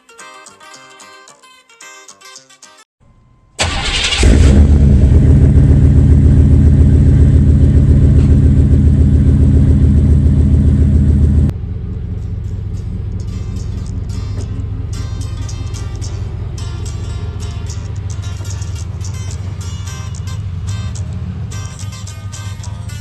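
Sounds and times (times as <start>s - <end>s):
music: 0.0s - 3.7s, 12.3s - 23.0s
pickup engine starting and running: 3.6s - 23.0s.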